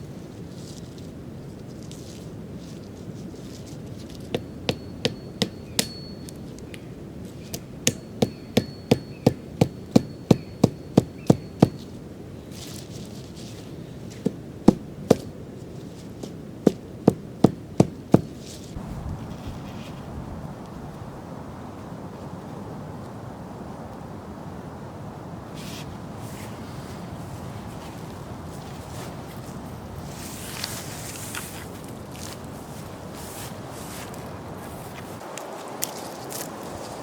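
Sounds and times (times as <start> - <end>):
hammering blows: 4.2 - 6.4, 7.5 - 11.9, 16.7 - 18.4.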